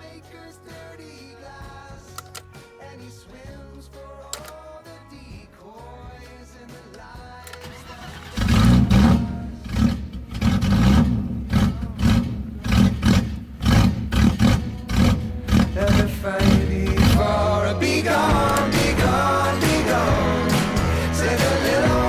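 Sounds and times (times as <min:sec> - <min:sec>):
background music: 0:00.0 - 0:22.0
car engine starting and running: 0:07.5 - 0:22.0.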